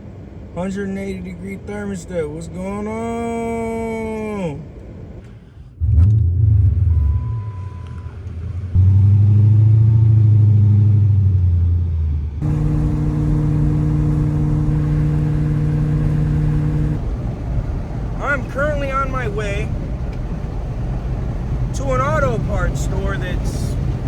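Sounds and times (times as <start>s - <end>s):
road and wind noise: 0.0s - 24.0s
car engine accelerating: 12.4s - 24.0s.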